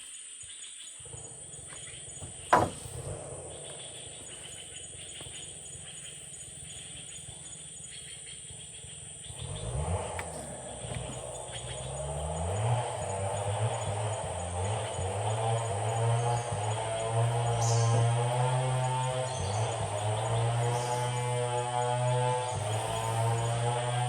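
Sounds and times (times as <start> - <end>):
sharp knock: 2.5 - 3.1
engine starting up: 8.7 - 24.0.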